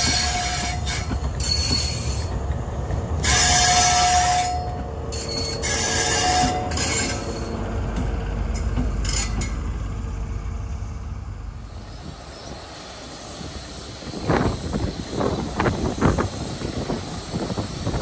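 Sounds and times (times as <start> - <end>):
train rumble: 0.0 - 18.0
high-pitched squeaks: 3.2 - 7.7.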